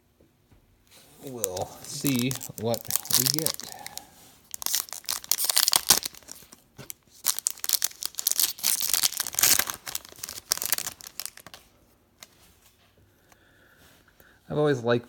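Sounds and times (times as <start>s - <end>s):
wrapper tearing and crinkling: 1.2s - 11.6s.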